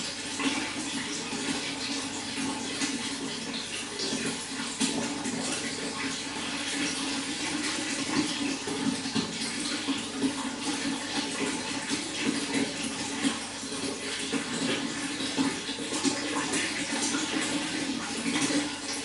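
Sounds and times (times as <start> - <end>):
running water splashing: 0.0 - 19.0.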